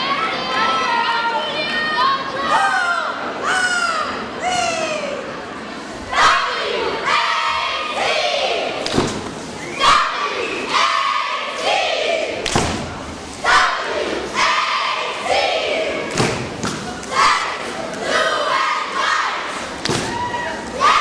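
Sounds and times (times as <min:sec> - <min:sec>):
squad shouting a cheer in unison: 0:06.1 - 0:08.8, 0:09.8 - 0:12.4, 0:13.4 - 0:16.5, 0:17.1 - 0:21.0.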